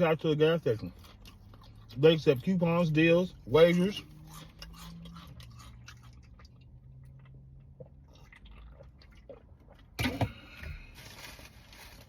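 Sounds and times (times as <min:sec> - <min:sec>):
person chewing a sandwich: 0:00.2 - 0:12.0.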